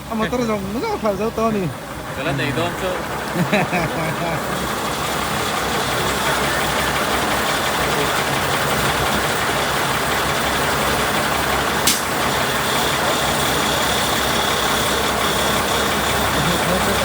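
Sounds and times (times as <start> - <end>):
truck engine running: 0.0 - 17.0
sharp click: 11.8 - 12.2.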